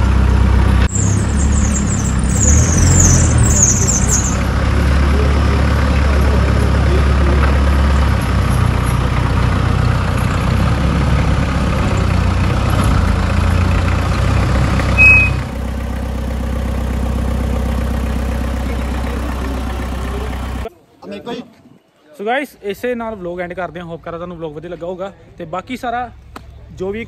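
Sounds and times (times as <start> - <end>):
jeep engine running: 0.0 - 20.7
loud high-pitched beep: 15.0 - 15.5.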